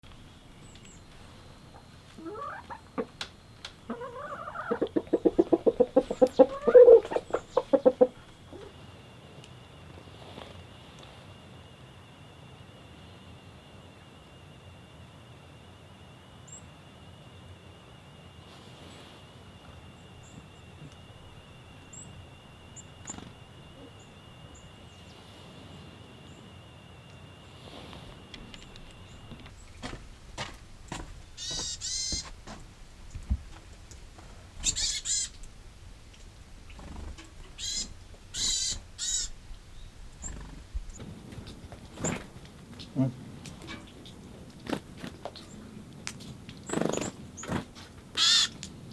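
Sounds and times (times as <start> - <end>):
low outdoor rumble: 0.0 - 31.4, 32.3 - 48.9
bird calling: 0.2 - 11.2, 18.4 - 29.5, 41.0 - 48.9
steady high whine: 7.0 - 29.6.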